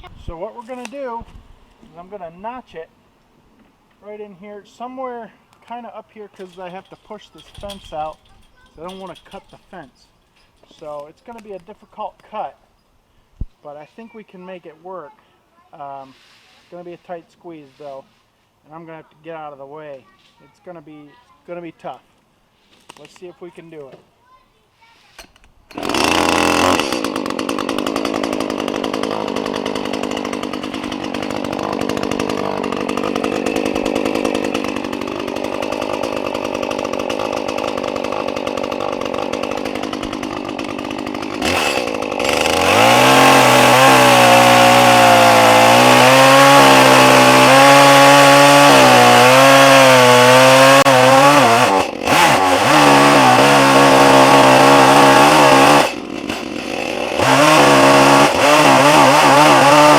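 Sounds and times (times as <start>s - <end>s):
chainsaw cutting: 6.3s - 10.0s, 25.0s - 59.9s.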